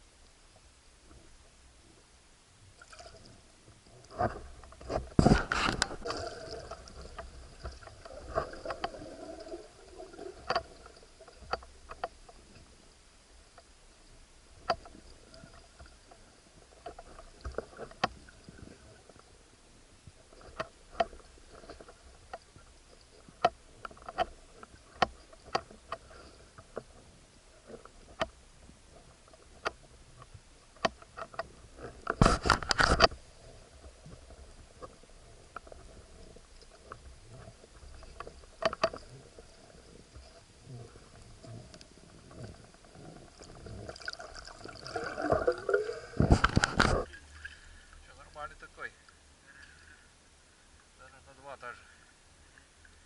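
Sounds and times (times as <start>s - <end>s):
faint steady hum: 0.0s - 53.0s
water rushing and sloshing: 2.8s - 12.8s, 33.2s - 49.4s
underwater clicks and taps: 4.1s - 9.0s, 10.4s - 12.7s, 14.6s - 16.2s, 20.4s - 22.5s, 23.3s - 26.9s, 29.3s - 33.2s, 37.9s - 39.2s, 45.1s - 47.1s.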